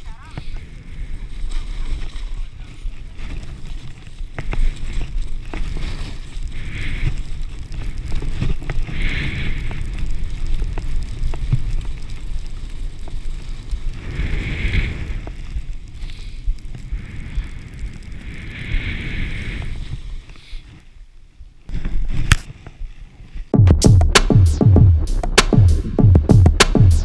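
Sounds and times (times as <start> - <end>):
skis sliding over snow: 0.2 - 15.2.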